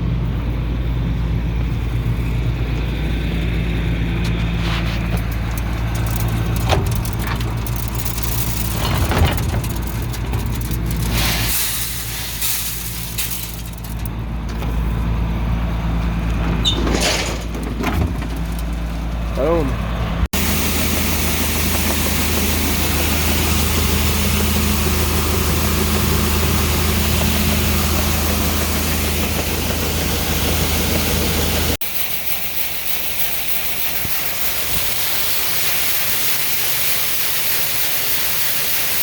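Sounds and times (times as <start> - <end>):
engine running steadily: 0.0 - 39.0
clicks and rattles: 4.2 - 15.2, 16.0 - 19.4
hiss: 11.0 - 13.8, 20.4 - 29.6, 30.2 - 39.0.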